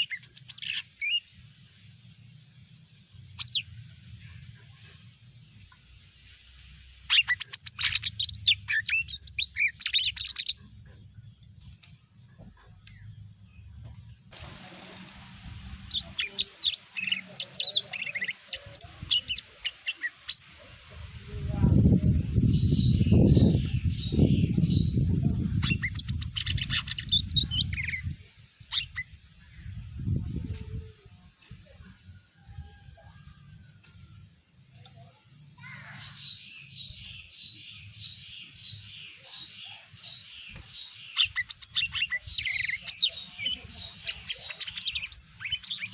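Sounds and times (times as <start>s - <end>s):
bird singing high chirps: 0.0s - 1.3s, 7.1s - 10.7s, 15.8s - 20.5s, 22.4s - 29.8s, 35.6s - 45.9s.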